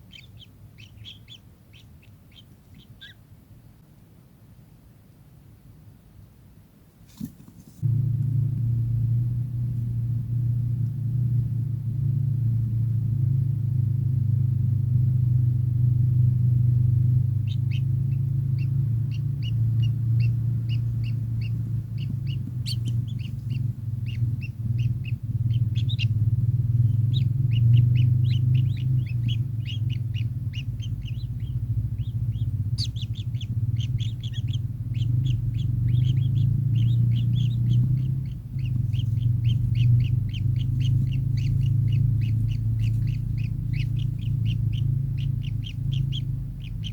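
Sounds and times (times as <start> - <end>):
kingfisher calling: 0.0 - 3.2, 17.3 - 46.9
steady low hum: 0.0 - 46.9.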